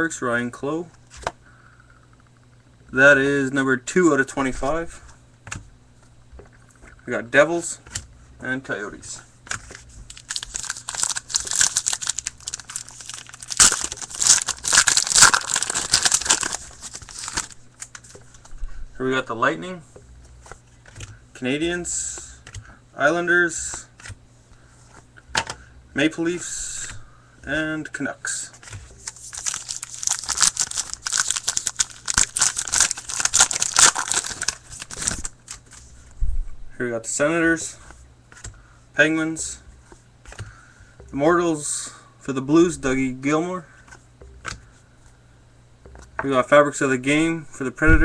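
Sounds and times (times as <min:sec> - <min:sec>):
wrapper tearing and crinkling: 0:10.1 - 0:18.0, 0:29.0 - 0:35.8.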